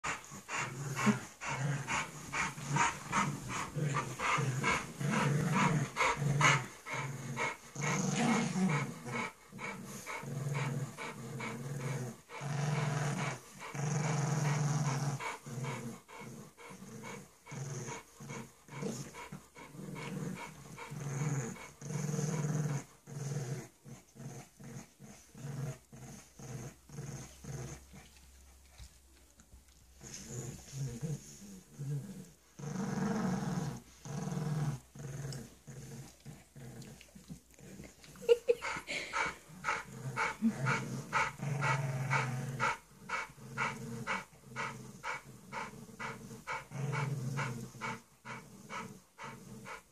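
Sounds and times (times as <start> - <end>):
dog panting: 0.0 - 12.5, 14.4 - 21.8, 36.7 - 49.9
dogs play-growling: 0.0 - 49.9.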